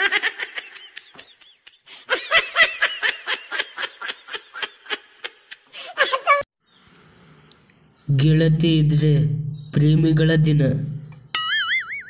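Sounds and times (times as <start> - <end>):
person laughing high-pitched: 3.5 - 6.5.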